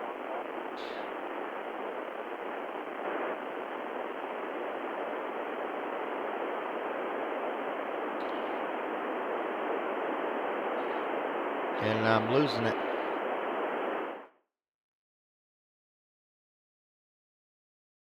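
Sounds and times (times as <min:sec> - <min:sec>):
radio static hiss: 0:00.0 - 0:14.3.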